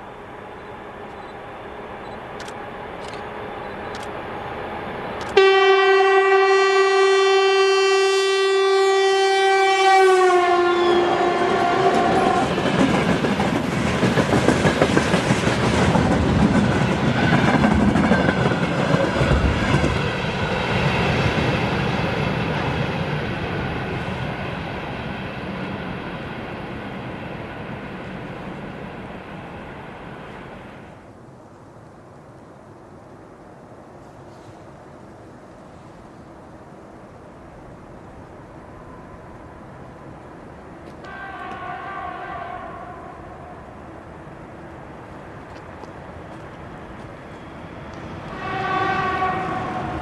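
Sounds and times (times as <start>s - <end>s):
locomotive horn blast: 5.3s - 12.7s, 41.0s - 44.1s, 48.2s - 50.0s
train wheels clacking on rails: 11.5s - 30.9s.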